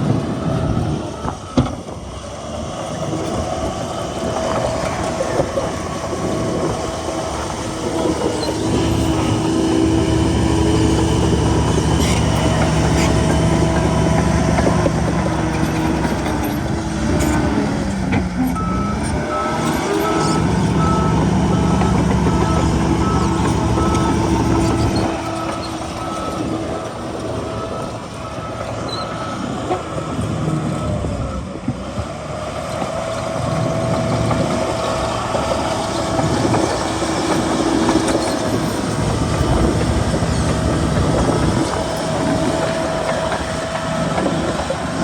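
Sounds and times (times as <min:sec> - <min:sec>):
reversing alarm beeping: 0:00.0 - 0:17.8, 0:18.5 - 0:31.4
diesel machinery engine running: 0:00.0 - 0:45.0.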